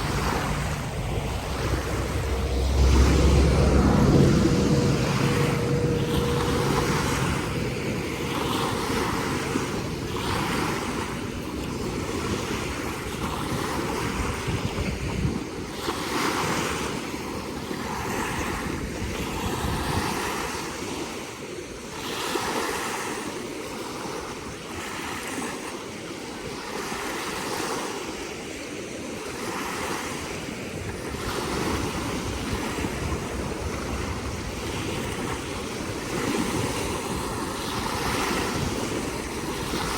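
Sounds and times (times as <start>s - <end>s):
lake water lapping: 0.0s - 18.3s, 29.2s - 39.9s
wind rumbling on microphone: 0.0s - 20.7s, 29.7s - 39.9s.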